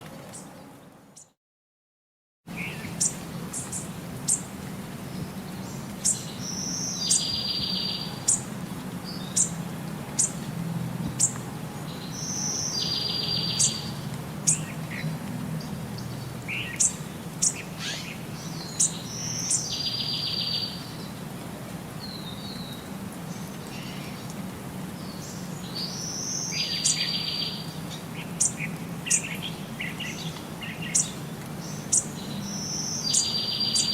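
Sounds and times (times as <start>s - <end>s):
bird chirping: 11.2s - 15.0s, 16.0s - 21.1s, 25.1s - 33.9s.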